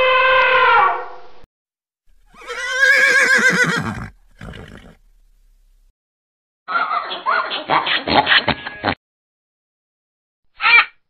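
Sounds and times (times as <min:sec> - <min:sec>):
animal call with quavering pitch: 0:02.2 - 0:05.0, 0:10.5 - 0:11.0
elephant trumpeting: 0:02.2 - 0:05.1.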